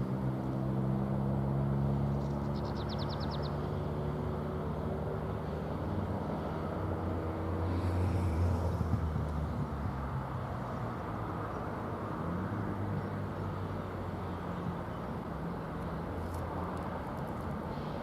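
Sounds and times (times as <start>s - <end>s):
railcar engine drone: 4.3s - 18.0s
moving train rumble: 6.4s - 11.2s.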